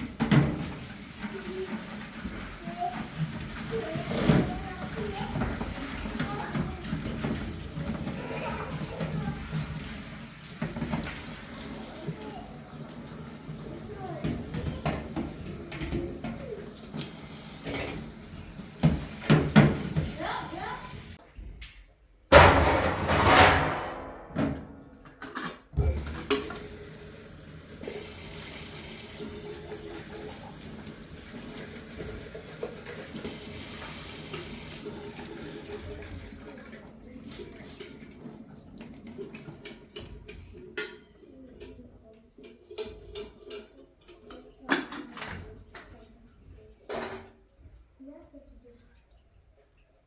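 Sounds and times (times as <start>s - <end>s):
water running: 0.0s - 21.2s, 25.8s - 41.0s
dishes and pots clinking: 14.2s - 18.2s, 22.3s - 26.6s, 37.5s - 46.1s.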